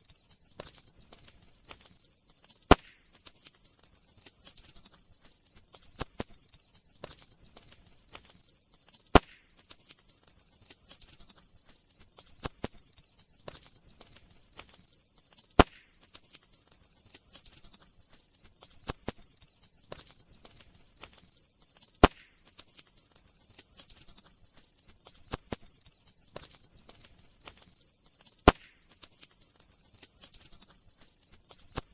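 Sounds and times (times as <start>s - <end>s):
sharp fire pops: 0.0s - 3.6s, 4.2s - 10.0s, 12.2s - 16.5s, 18.7s - 22.9s, 25.1s - 25.8s, 26.4s - 29.4s, 31.5s - 31.9s
faint high hiss: 0.0s - 31.9s.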